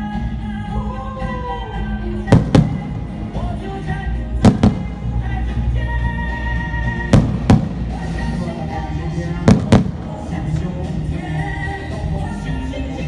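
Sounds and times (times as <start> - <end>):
loud music: 0.0 - 13.0
firework shells bursting: 4.4 - 5.1, 9.5 - 10.4.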